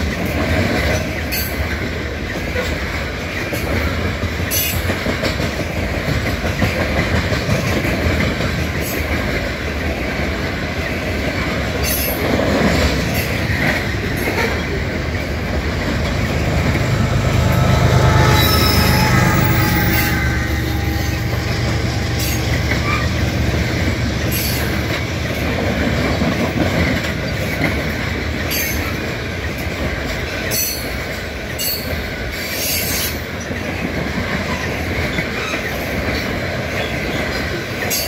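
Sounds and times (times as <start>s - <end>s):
steel wheels rumbling on rail: 0.0s - 38.0s
locomotive engine: 6.8s - 28.4s.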